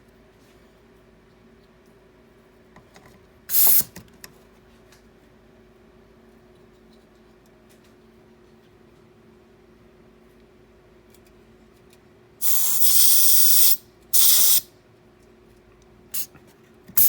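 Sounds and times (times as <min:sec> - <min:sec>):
gas hissing from hose: 0:03.5 - 0:03.8, 0:12.4 - 0:14.6.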